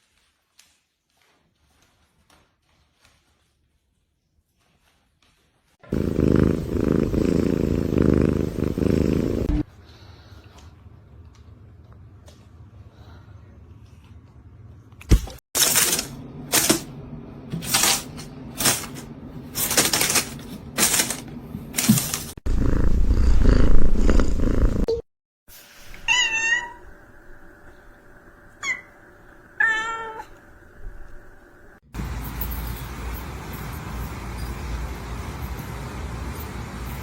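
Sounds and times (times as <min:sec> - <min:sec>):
cat chirp: 0:26.0 - 0:26.9
cat meowing: 0:26.0 - 0:26.9, 0:29.6 - 0:30.4.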